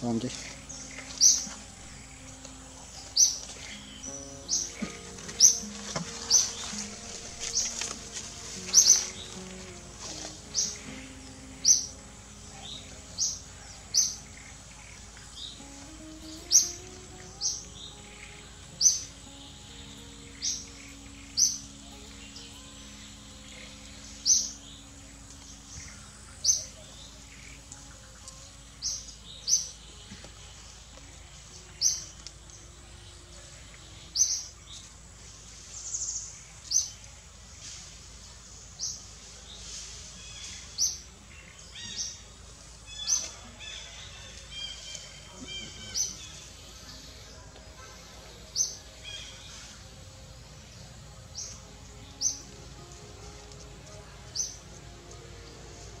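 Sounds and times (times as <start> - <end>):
bird chirping: 0.0 - 37.2, 38.7 - 56.0
thin bird notes: 0.0 - 38.1.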